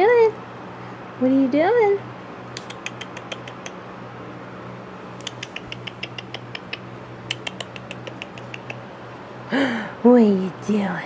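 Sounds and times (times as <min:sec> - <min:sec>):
steady low hum: 0:00.0 - 0:11.0
puppy claws clicking: 0:02.6 - 0:03.8, 0:05.2 - 0:08.9.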